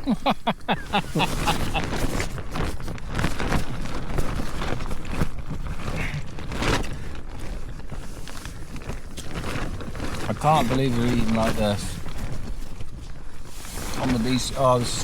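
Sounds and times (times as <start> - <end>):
fabric rustling and crackling: 0.0 - 15.0.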